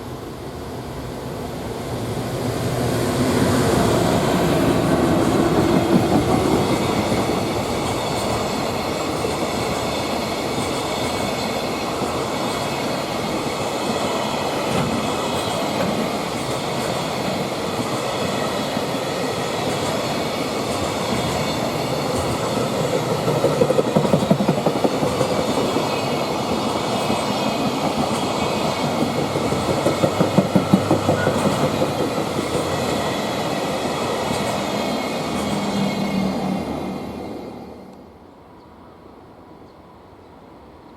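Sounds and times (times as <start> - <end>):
freight train wagons rumbling: 3.6 - 13.6, 14.2 - 37.2
wheels clacking over rail joints: 14.6 - 35.9.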